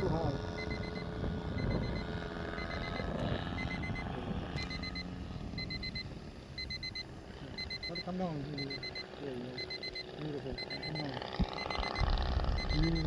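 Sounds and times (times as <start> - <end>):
electronic timer alarm beeping: 0.0 - 13.0
steady low rumble: 0.0 - 13.0.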